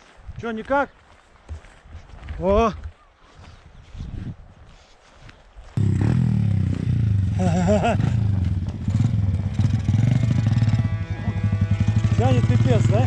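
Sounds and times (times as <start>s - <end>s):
motorcycle engine running: 5.8s - 13.0s.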